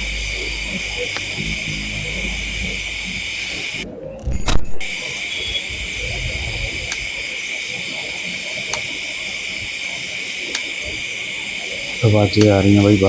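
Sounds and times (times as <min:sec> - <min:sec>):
crickets droning: 0:00.0 - 0:04.1, 0:05.0 - 0:13.0
low rumble: 0:00.0 - 0:04.6.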